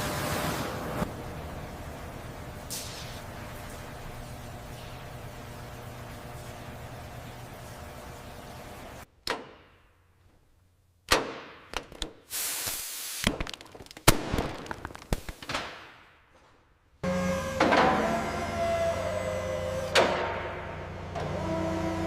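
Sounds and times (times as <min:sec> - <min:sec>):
short hiss: 0:02.7 - 0:03.3, 0:12.3 - 0:13.3.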